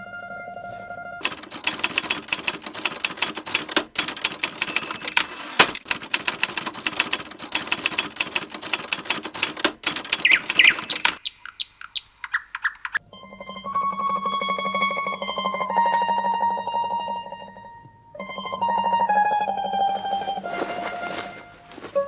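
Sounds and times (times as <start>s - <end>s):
rapid percussive clicking: 1.2s - 13.0s.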